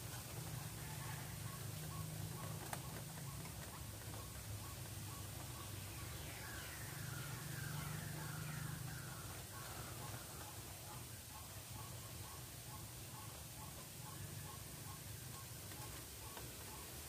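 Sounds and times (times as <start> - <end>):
steady low hum: 0.0 - 17.0
faint regular ticks: 1.5 - 5.7.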